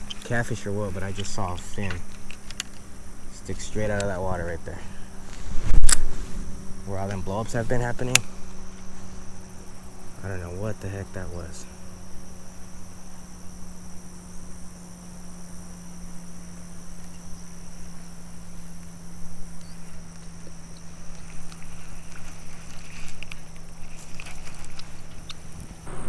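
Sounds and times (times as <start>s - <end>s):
small clicks and rustles: 0.0s - 3.0s, 19.5s - 25.8s
low hum and rumble: 0.0s - 15.9s, 18.3s - 26.0s
high insect drone: 0.0s - 26.0s.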